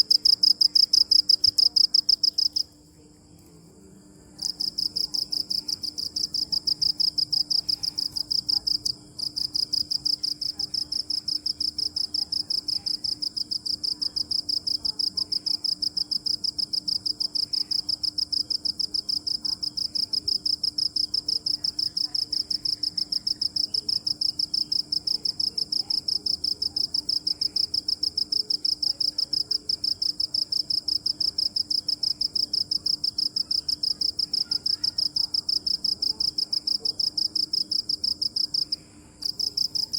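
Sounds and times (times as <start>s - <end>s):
cricket chirping: 0.0s - 2.8s, 4.4s - 39.9s.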